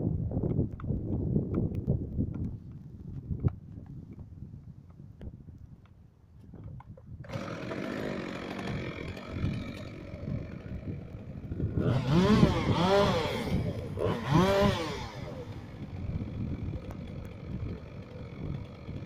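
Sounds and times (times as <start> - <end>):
chainsaw engine revving: 7.2 - 19.0.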